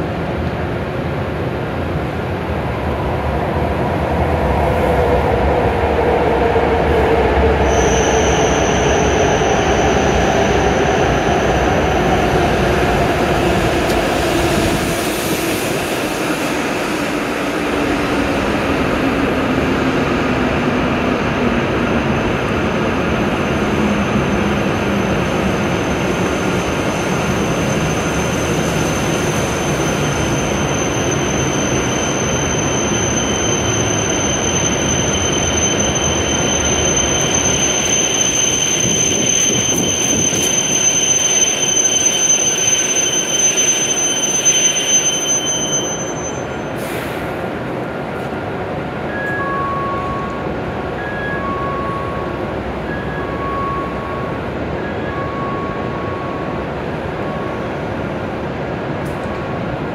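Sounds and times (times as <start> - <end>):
train braking with falling whine: 7.5 - 19.5, 22.3 - 47.6
thin high whine: 25.9 - 47.0.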